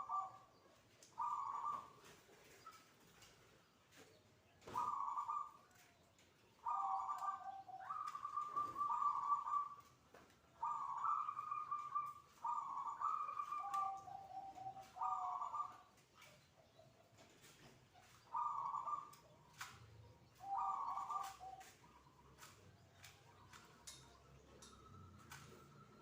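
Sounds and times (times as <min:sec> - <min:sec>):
dove cooing: 0:00.0 - 0:00.5, 0:01.1 - 0:02.1, 0:04.6 - 0:05.7, 0:06.6 - 0:09.9, 0:10.6 - 0:16.0, 0:17.5 - 0:22.5.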